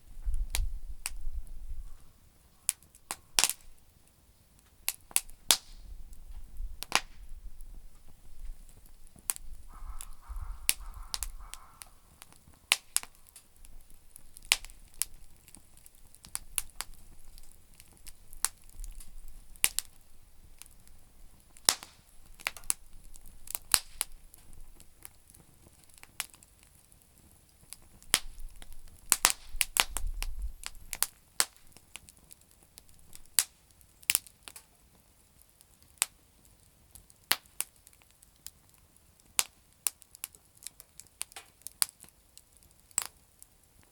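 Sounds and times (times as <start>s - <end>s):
campfire crackling: 0.0s - 43.9s
faint steady hiss: 0.0s - 43.9s
sharp pops from fire: 0.2s - 43.9s
low rumble: 9.5s - 14.2s.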